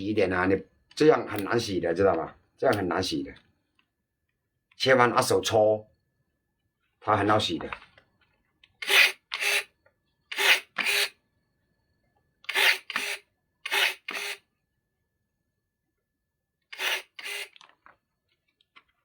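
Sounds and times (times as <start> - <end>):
rasping scrapes on roots: 8.8 - 9.7, 10.3 - 11.1, 12.5 - 14.4.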